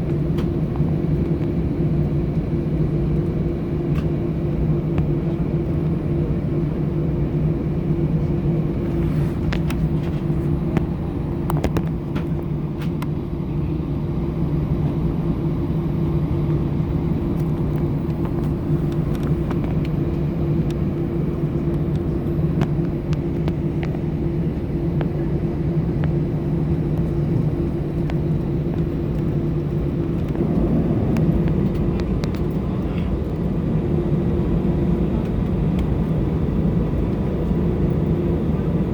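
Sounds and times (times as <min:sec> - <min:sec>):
jet engines rumbling in cabin: 0:00.0 - 0:38.9.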